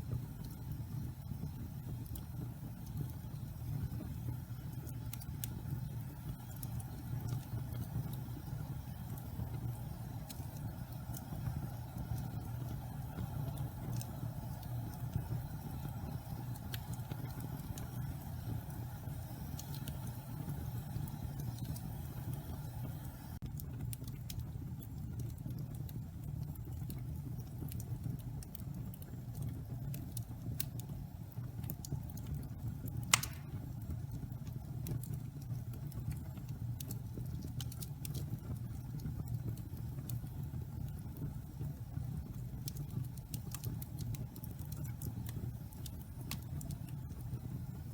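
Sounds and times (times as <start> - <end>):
fire burning with crackles: 0.0 - 47.9
soft hiss: 33.0 - 33.9
sharp pop from fire: 33.1 - 33.8.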